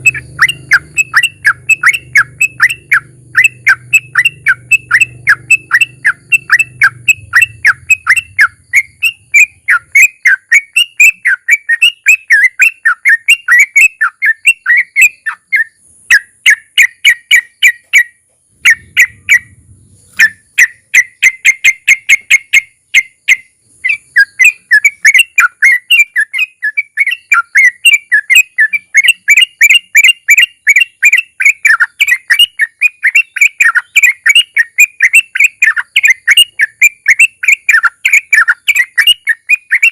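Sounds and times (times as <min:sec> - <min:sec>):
bird singing whistled notes: 0:00.0 - 0:39.9.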